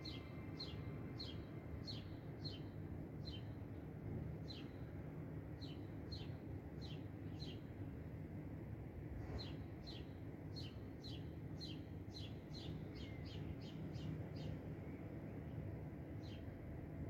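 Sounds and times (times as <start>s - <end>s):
songbird chirping: 9.4s - 15.6s.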